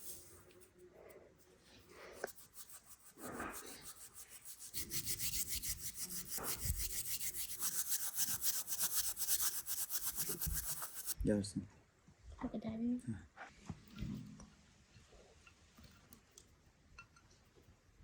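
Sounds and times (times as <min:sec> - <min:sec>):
rhythmic rubbing strokes: 0:00.0 - 0:00.5, 0:02.2 - 0:11.2.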